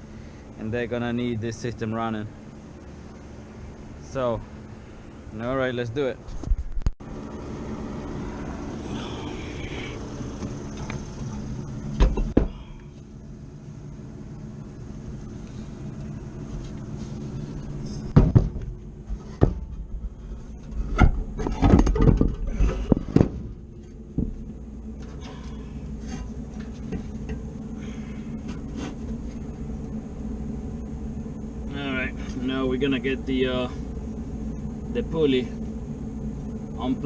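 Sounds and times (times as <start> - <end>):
steady low hum: 0.0 - 37.0
metal knocks and clanks: 20.6 - 24.4.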